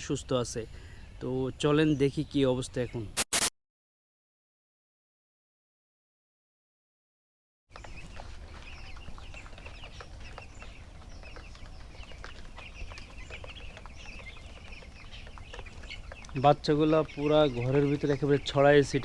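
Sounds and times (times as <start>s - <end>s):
chicks peeping: 7.8s - 19.0s.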